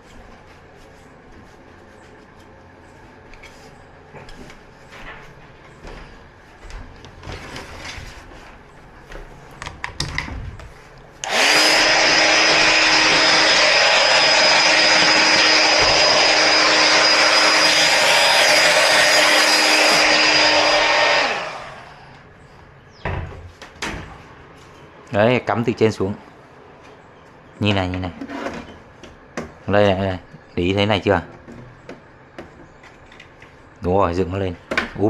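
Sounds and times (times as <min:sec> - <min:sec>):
electric air blower running: 0:11.2 - 0:22.3.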